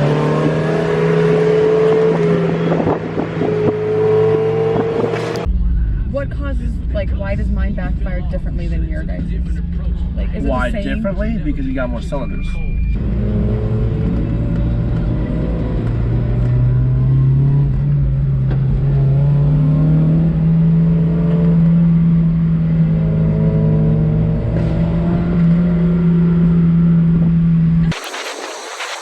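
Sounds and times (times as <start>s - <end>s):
car engine revving under load: 0.0s - 5.5s.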